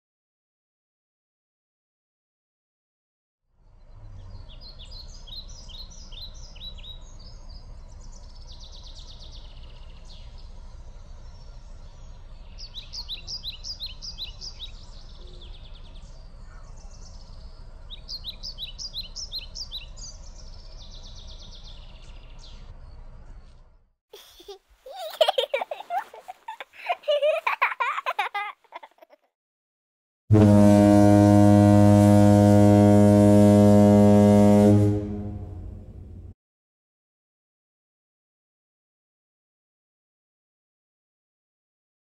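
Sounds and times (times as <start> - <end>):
songbird singing: 3.6 - 23.8
steady low rumble: 35.0 - 36.3.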